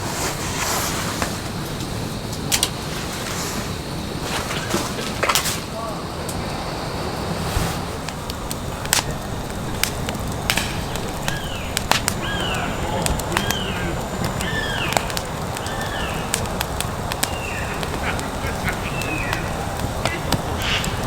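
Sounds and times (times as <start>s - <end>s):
sharp crackles and pops: 0.0s - 21.0s
bird chirping: 10.5s - 21.0s.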